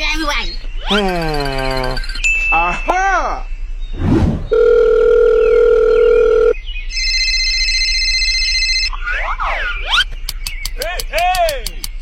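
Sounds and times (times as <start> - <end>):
electronic beep tones: 4.4 - 7.1.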